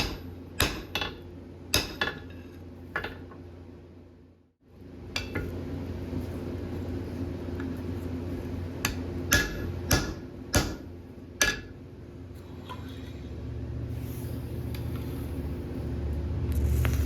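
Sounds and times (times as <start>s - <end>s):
hammer striking steel on anvil: 0.0s - 2.2s, 8.8s - 11.8s
steady low hum: 0.0s - 17.0s.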